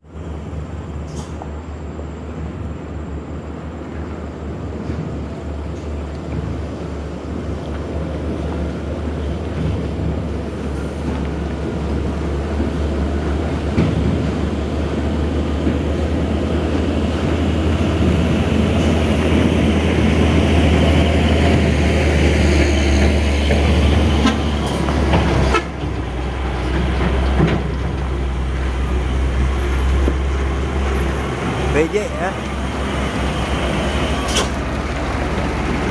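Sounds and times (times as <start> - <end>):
diesel truck engine labouring uphill: 4.6 - 35.9.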